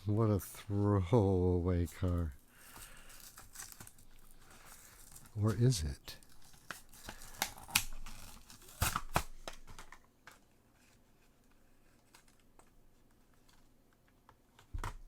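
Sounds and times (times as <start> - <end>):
packaging tearing and crinkling: 2.0 - 10.0.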